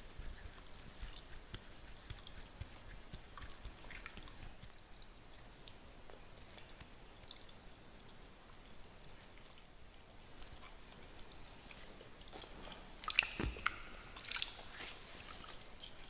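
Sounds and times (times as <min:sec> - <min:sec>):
fingertips scratching a beard: 0:00.0 - 0:04.7.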